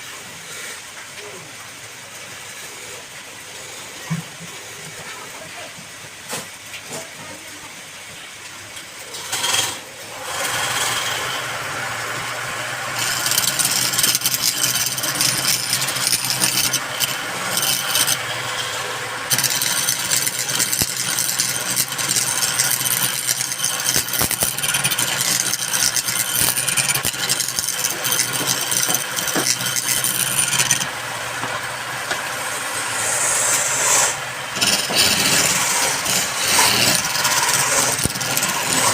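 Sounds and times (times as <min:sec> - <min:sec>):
power tool motor: 0:09.2 - 0:30.9, 0:32.9 - 0:38.9
power tool cutting wood: 0:09.2 - 0:38.9.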